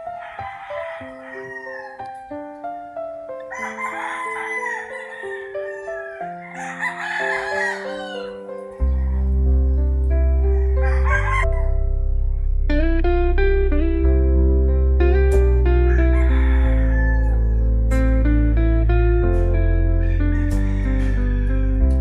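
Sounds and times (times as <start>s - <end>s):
rooster crowing: 0.0s - 2.4s, 3.4s - 9.8s, 10.4s - 11.7s, 15.9s - 17.7s, 20.0s - 21.6s
melodic background music: 0.0s - 22.0s
deep bass: 8.8s - 22.0s.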